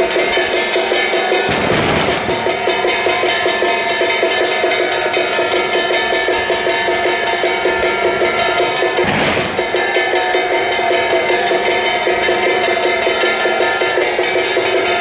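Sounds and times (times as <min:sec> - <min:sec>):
cymbal crash: 0:09.0 - 0:10.0.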